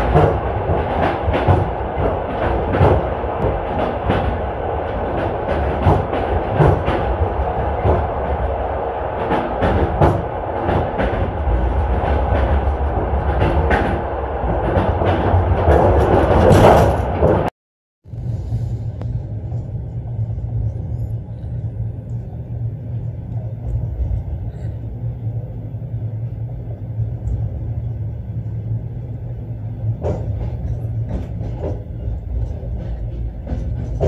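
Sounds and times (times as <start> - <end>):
train rumbling on rails: 0.0 - 34.0.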